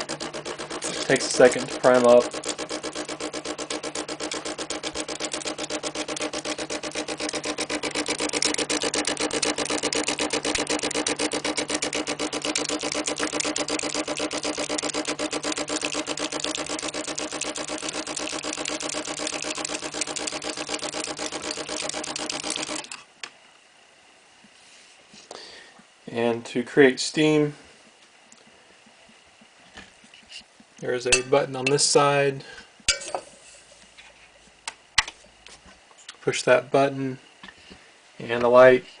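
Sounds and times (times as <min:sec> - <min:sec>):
water pump buzzing: 0:00.0 - 0:23.0.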